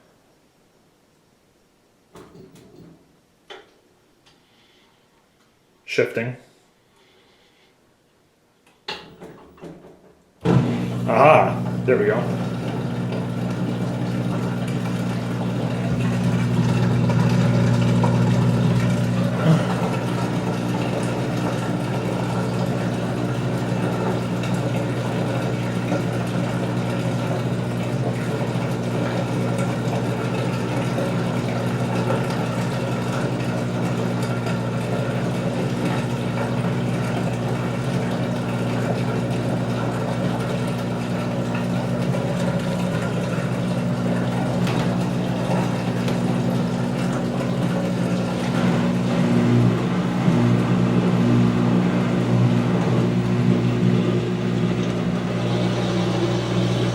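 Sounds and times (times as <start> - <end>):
washer drain pump humming: 10.4 - 56.9.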